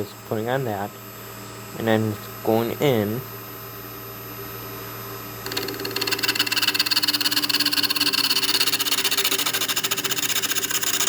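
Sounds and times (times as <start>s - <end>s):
lathe motor humming: 5.4s - 11.0s
gouge chattering on wood: 5.5s - 11.0s.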